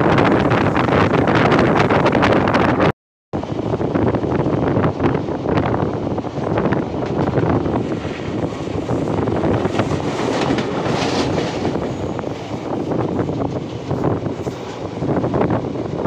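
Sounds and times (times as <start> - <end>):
train wheels rumbling and rattling: 0.0 - 16.0
wind buffeting microphone: 0.0 - 16.0.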